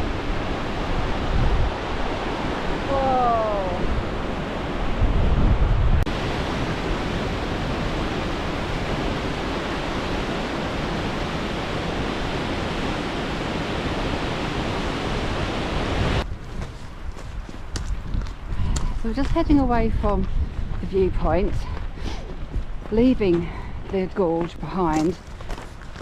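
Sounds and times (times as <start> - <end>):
waterfall rushing: 0.0 - 4.9, 6.1 - 16.2.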